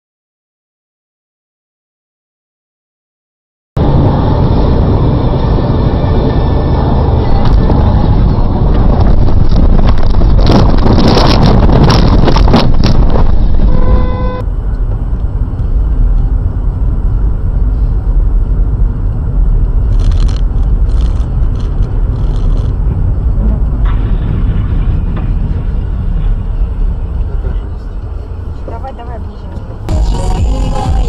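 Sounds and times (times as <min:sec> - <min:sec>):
low road and engine rumble: 0:03.8 - 0:31.0
rough vehicle noise with clattering: 0:03.8 - 0:31.0
vehicle horn: 0:13.6 - 0:14.5.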